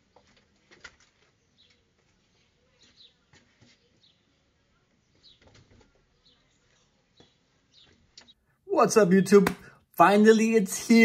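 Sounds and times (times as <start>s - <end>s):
faint bird chirps: 1.3s - 8.5s.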